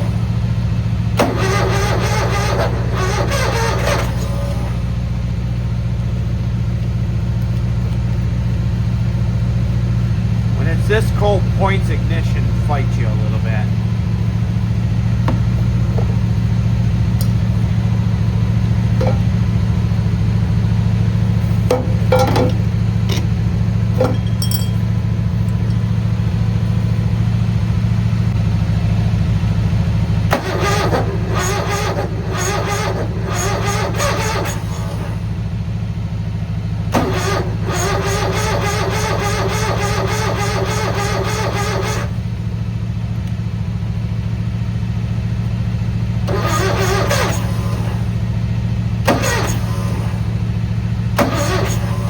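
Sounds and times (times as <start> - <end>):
engine cranking without firing: 0.0 - 28.6, 30.1 - 35.5, 36.6 - 43.8, 45.5 - 52.0
steady low hum: 4.6 - 30.1.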